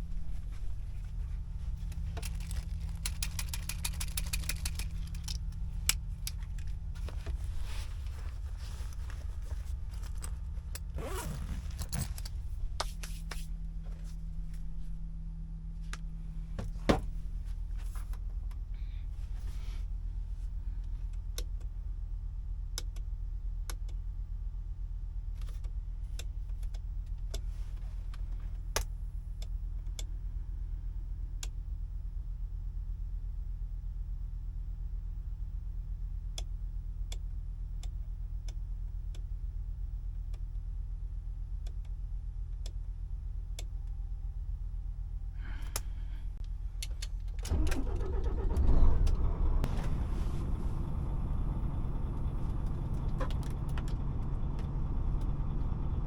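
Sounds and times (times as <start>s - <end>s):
diesel truck engine running: 0.0s - 21.2s, 45.3s - 56.0s
clicks and jingling rattle: 1.7s - 6.8s, 9.7s - 12.5s
rapid ticks: 1.8s - 6.5s.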